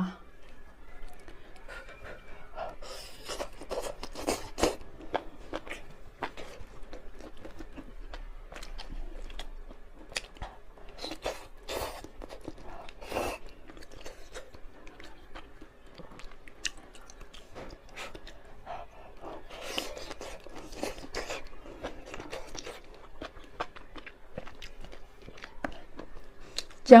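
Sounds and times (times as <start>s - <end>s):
close-up chewing noodles: 0.3s - 26.9s.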